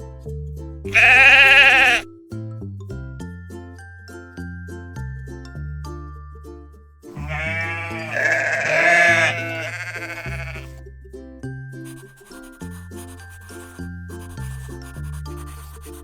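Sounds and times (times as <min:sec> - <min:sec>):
music with plucked notes and bass: 0:00.0 - 0:11.8
sheep bleating: 0:00.9 - 0:02.1, 0:07.2 - 0:10.8.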